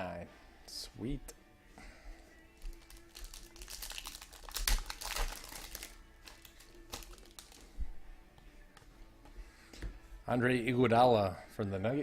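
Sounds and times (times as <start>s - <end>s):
wrapper crinkling: 2.6s - 7.7s.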